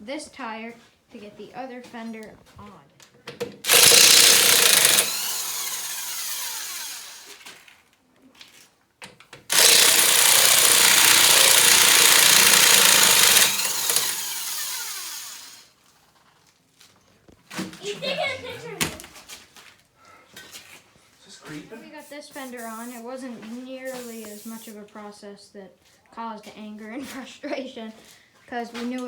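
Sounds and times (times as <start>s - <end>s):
power tool motor whining: 3.6s - 7.5s, 9.5s - 15.6s.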